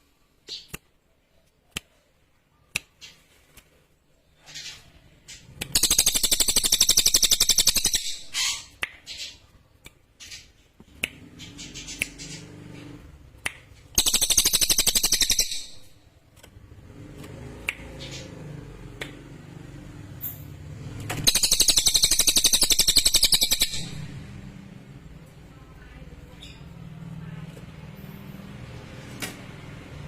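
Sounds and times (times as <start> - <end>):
bird chirps and clicks: 0.4 - 19.4, 20.2 - 27.5
songbird trilling: 5.8 - 9.4, 14.0 - 16.0, 21.2 - 24.1.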